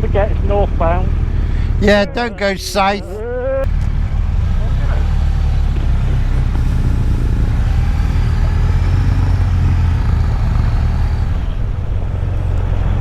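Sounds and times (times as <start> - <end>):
motorcycle engine running: 3.7 - 13.0.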